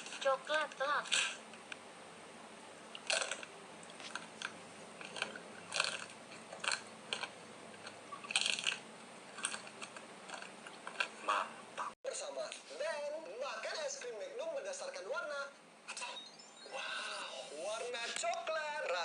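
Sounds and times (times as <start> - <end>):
ice cream bar crunching: 2.9 - 11.9.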